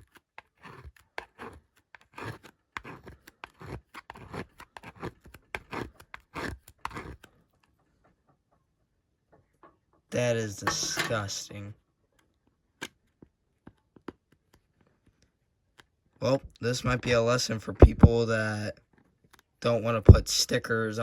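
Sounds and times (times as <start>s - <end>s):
scraping on plastic casing: 0.0s - 7.3s.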